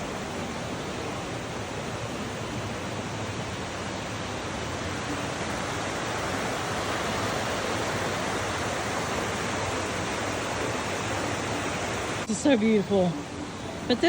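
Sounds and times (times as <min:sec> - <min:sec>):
mountain stream rushing: 0:00.0 - 0:14.0.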